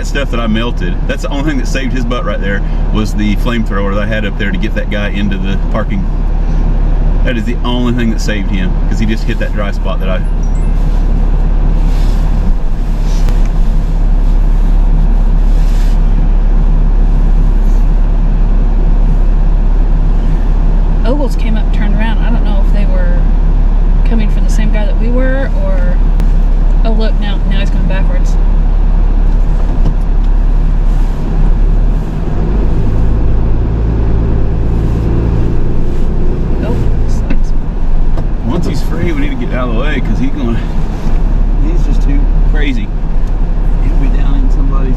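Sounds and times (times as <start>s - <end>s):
tow truck engine idling: 0.0s - 44.9s.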